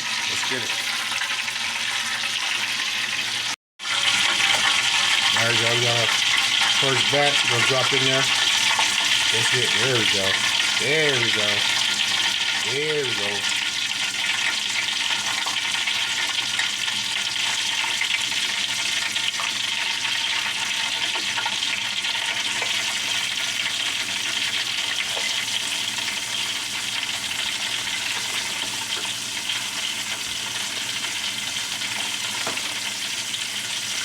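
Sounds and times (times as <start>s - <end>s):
chicken frying in hot oil: 0.0s - 34.0s.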